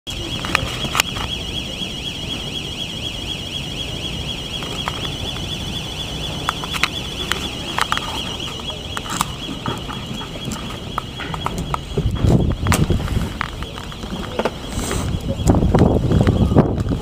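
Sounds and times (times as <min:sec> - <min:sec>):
high-pitched warbling tone: 0:00.1 - 0:17.0
sharp clicks and knocks: 0:06.4 - 0:14.6.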